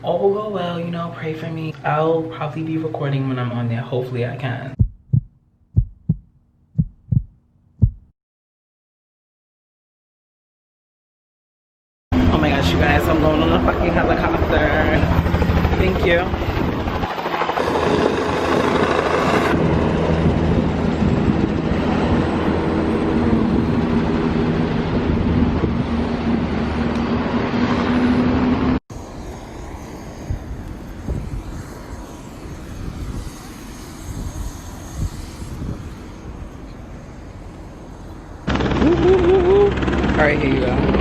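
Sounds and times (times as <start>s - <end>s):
helicopter engine and rotor: 12.2s - 27.5s, 37.9s - 41.0s.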